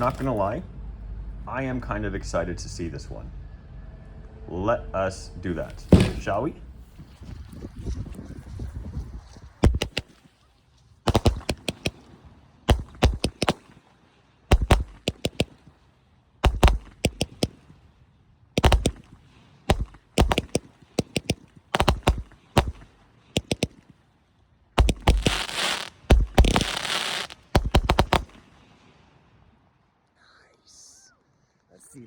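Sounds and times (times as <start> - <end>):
firework bangs: 0.0 - 0.4, 5.7 - 6.6, 24.8 - 28.4
firework crackling: 24.8 - 28.4.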